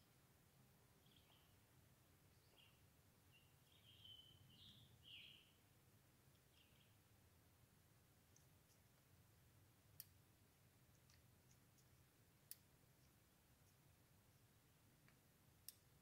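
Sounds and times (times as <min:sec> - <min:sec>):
faint bird chirps: 0:00.9 - 0:05.7, 0:06.3 - 0:07.2.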